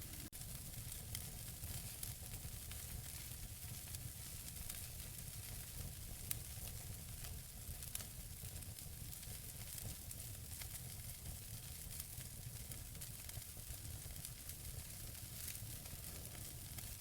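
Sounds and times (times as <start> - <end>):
wood fire burning: 0.0 - 17.0.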